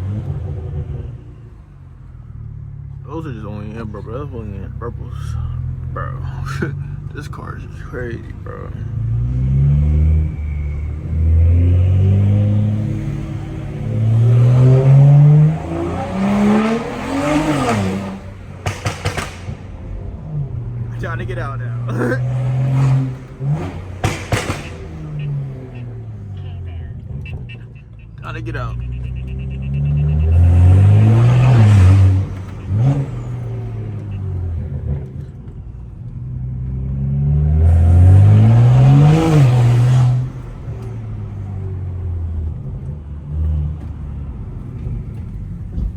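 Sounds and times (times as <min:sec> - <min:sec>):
car engine revving: 0:00.0 - 0:45.9
sharp exhaust pops: 0:10.0 - 0:26.4.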